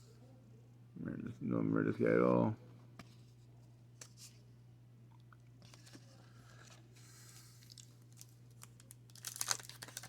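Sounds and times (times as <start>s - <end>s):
cards rustling and clicking: 7.6s - 10.0s
wrapper crinkling and tearing: 7.6s - 10.0s.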